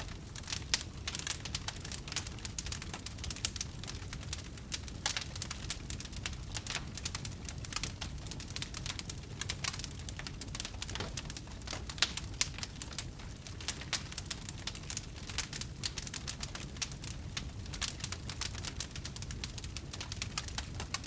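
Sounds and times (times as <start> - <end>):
wood campfire crackling: 0.0 - 21.0.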